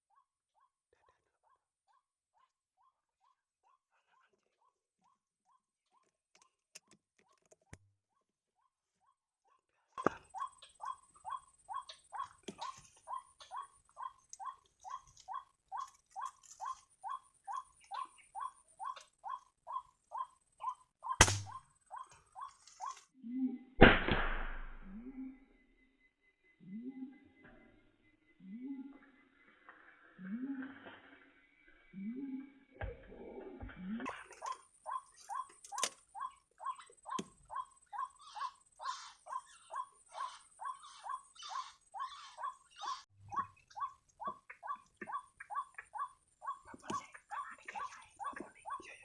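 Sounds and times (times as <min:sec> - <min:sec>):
sharp crack: 0:21.2 - 0:21.6, 0:23.8 - 0:24.8
sharp knock: 0:23.8 - 0:24.7.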